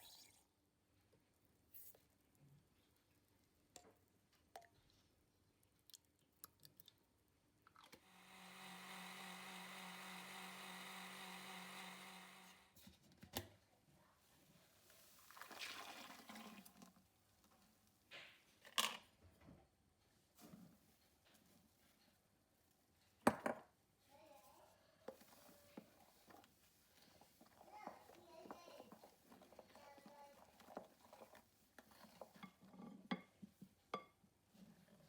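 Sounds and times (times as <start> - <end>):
blender motor running: 8.0 - 12.8.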